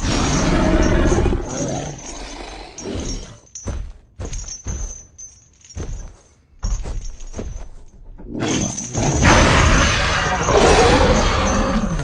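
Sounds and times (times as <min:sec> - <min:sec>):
thuds and knocks: 0:03.6 - 0:08.1.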